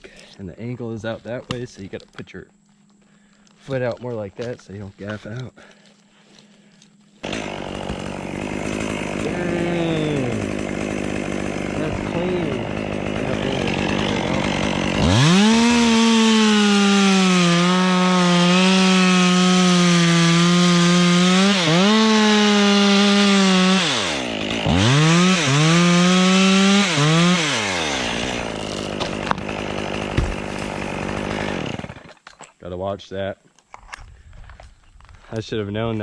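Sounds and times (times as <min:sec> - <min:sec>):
chainsaw revving and cutting: 0:07.2 - 0:32.2.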